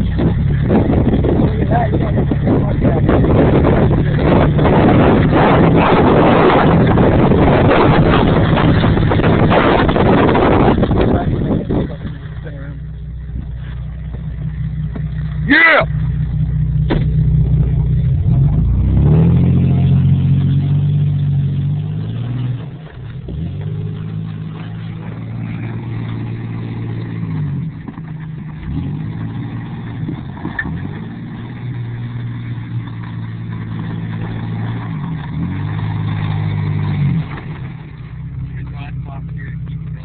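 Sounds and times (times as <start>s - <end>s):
truck engine revving: 0.0s - 40.0s.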